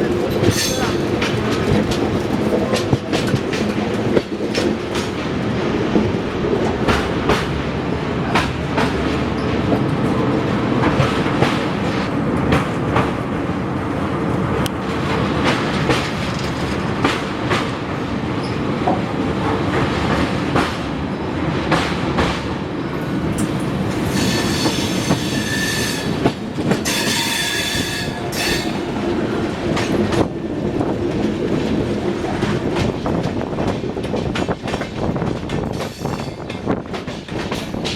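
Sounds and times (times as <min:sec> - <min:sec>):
wheels clicking over rail joints: 0:00.0 - 0:06.0
train coaches rumbling: 0:00.0 - 0:37.9
steel wheel squeal: 0:23.4 - 0:28.8.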